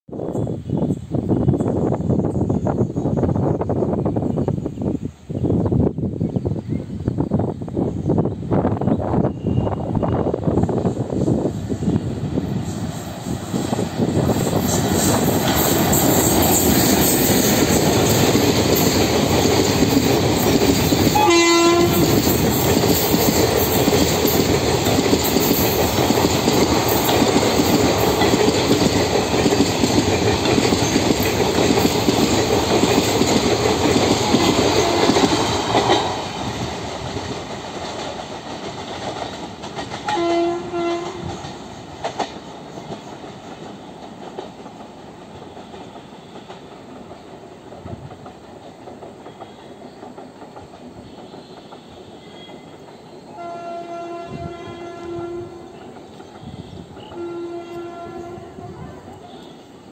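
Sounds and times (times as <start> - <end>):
express train rushing past: 0.1 - 59.9
train horn blast: 21.2 - 22.2, 40.0 - 41.4, 53.3 - 55.9, 56.6 - 59.6.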